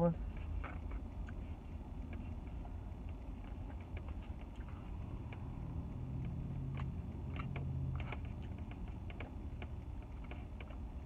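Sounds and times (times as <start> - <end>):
low traffic rumble: 0.0 - 11.0
person chewing food: 0.3 - 11.0
vehicle passing: 4.7 - 9.0.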